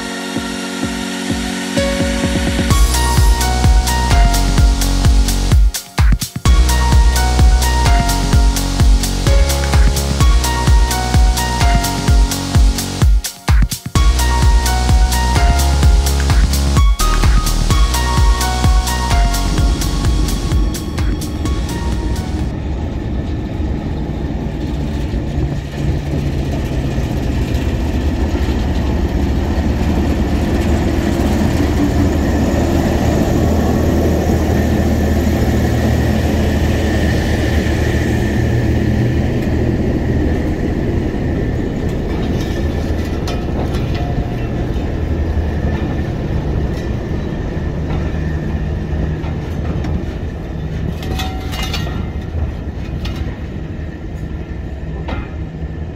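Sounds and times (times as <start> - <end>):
train rumbling on rails: 0.0 - 55.9.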